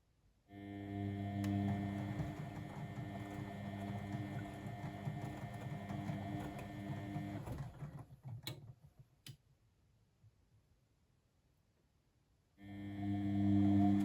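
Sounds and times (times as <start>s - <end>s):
washing machine motor humming: 0.6s - 8.8s, 12.7s - 14.0s.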